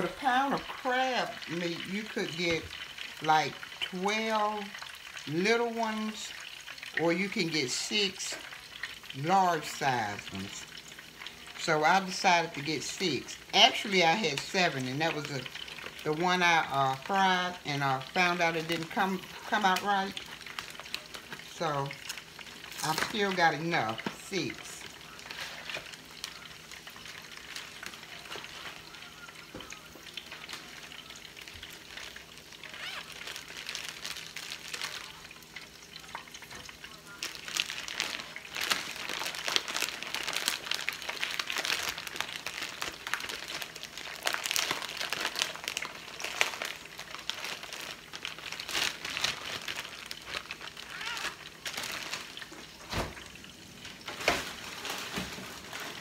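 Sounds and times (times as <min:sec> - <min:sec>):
oil sizzling and crackling: 0:00.0 - 0:56.0.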